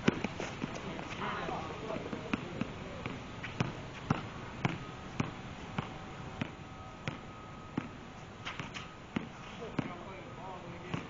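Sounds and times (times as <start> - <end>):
basketball bouncing on court: 1.4 - 7.2, 8.5 - 10.0.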